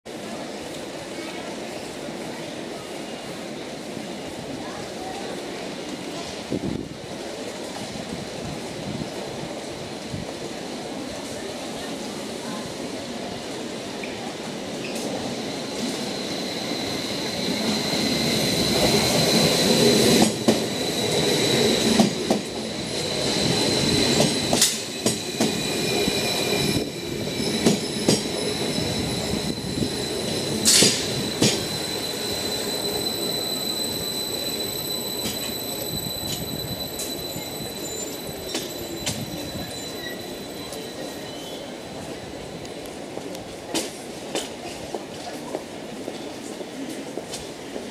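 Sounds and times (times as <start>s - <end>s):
train wheels rumbling: 0.1s - 47.9s
high wheel squeal: 14.8s - 41.9s.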